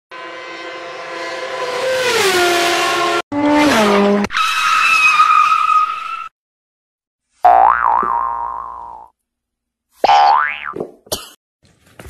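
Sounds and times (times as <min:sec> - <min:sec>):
race car engine: 0:00.1 - 0:04.4
high tyre screech: 0:00.2 - 0:06.3.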